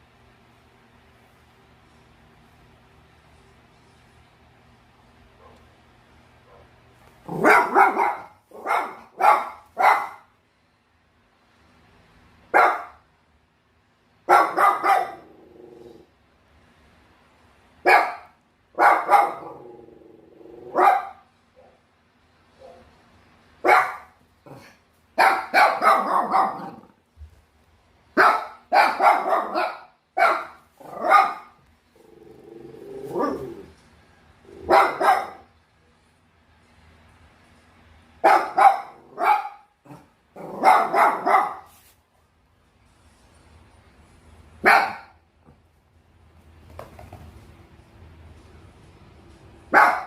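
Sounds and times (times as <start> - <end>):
dog barking: 5.4 - 5.7, 6.4 - 10.3, 12.5 - 13.0, 14.3 - 15.3, 17.8 - 19.6, 20.7 - 21.8, 23.6 - 26.9, 28.2 - 31.6, 34.7 - 35.5, 38.2 - 41.7, 44.6 - 45.2, 49.7 - 50.0
dog growling: 15.1 - 16.2, 19.4 - 20.8, 24.4 - 24.8, 26.0 - 27.0, 31.9 - 33.8, 39.8 - 40.7.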